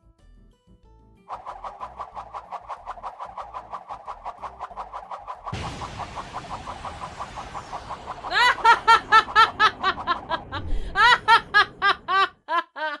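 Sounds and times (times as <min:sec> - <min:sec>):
soft quick pulsing: 0:01.3 - 0:11.0
high-pitched cackling laugh: 0:08.3 - 0:13.0.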